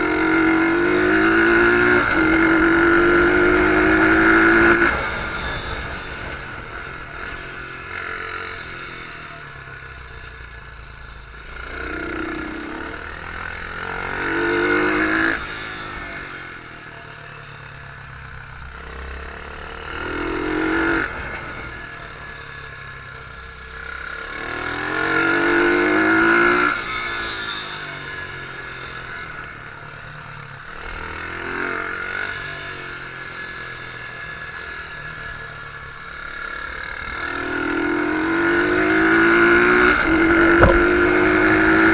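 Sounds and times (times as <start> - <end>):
motorbike engine revving: 0.0 - 10.0, 11.4 - 17.0, 30.7 - 41.9.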